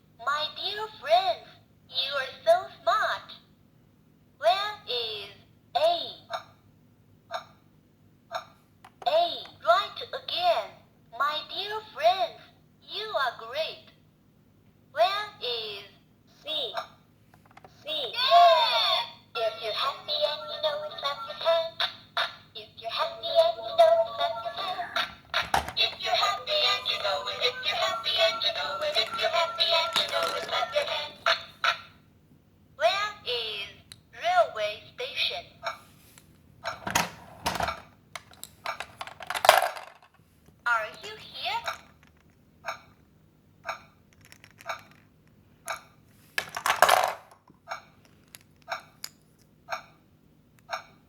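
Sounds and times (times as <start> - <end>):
toy playing children's song: 19.4 - 32.0
hard plastic clattering rattle: 25.4 - 26.0, 29.9 - 30.6, 36.9 - 40.1.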